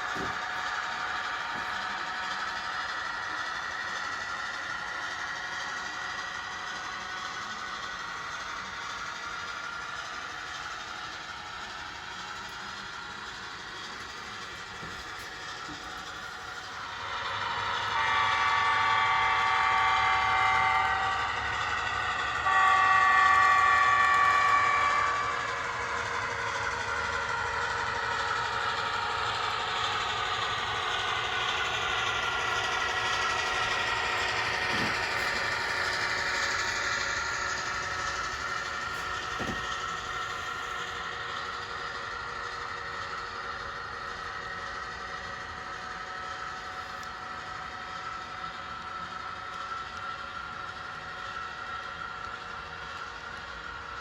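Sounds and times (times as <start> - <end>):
model locomotive running sound: 0.0 - 54.0
wheels hissing on track: 0.0 - 54.0
multi-tone train horn blasts: 16.8 - 27.2, 30.4 - 40.9.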